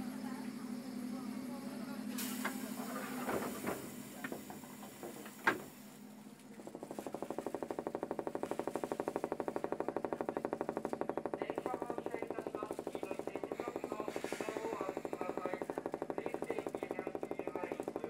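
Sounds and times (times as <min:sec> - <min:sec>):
fast steady rattling pulse: 0:06.6 - 0:18.0
train clicks: 0:06.8 - 0:18.0.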